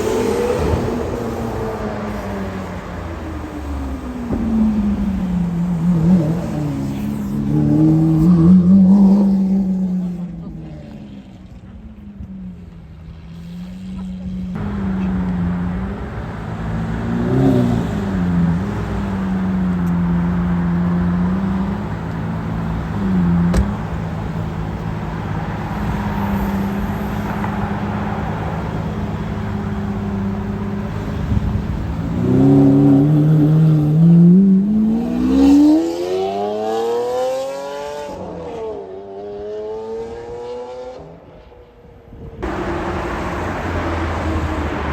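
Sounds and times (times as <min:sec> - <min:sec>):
car engine idling and revving: 0:00.0 - 0:44.9
car accelerating hard: 0:13.6 - 0:41.3.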